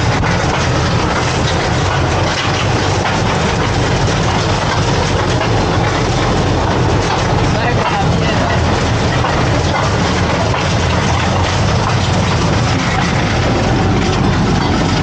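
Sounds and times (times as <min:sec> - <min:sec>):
rail vehicle running noise: 0:00.0 - 0:15.0
wheels clicking over rail joints: 0:00.0 - 0:15.0.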